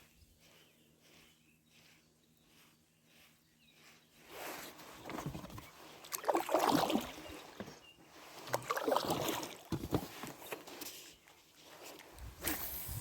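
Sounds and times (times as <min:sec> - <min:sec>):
light knocks of oars: 0:00.4 - 0:12.3
oars splashing through water: 0:03.8 - 0:11.1.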